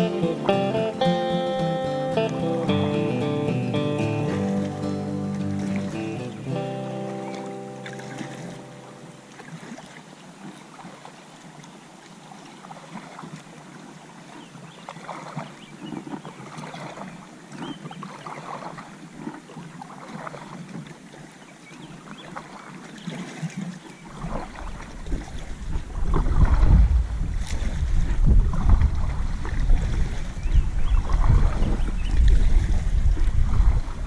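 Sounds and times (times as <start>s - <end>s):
paddle splashes: 0.0s - 34.0s
wind rumbling on microphone: 24.2s - 34.0s.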